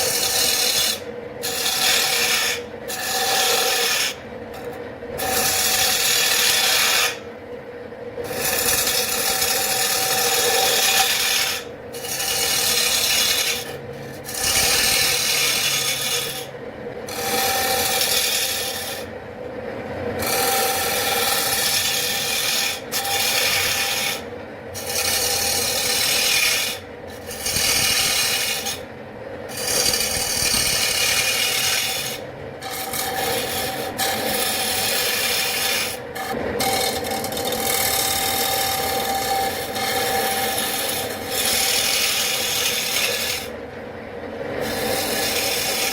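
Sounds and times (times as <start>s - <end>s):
abrasive rasping strokes on wood: 8.3s - 16.5s, 17.1s - 19.1s, 20.2s - 24.2s, 24.8s - 28.8s, 29.5s - 43.5s, 44.6s - 45.9s.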